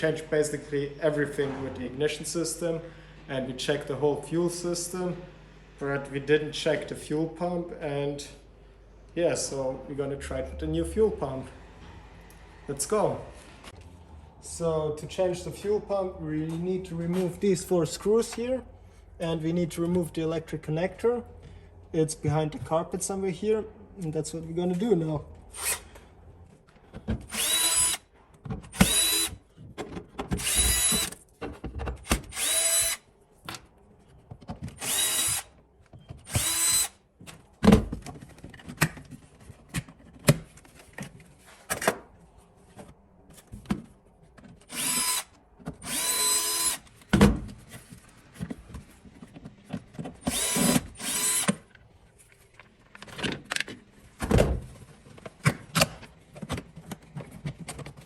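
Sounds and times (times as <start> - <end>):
electric drill-driver running: 27.3 - 28.0, 28.8 - 29.3, 30.4 - 31.1, 32.3 - 33.0, 34.8 - 35.5, 36.3 - 37.0, 44.7 - 46.8, 50.3 - 51.6.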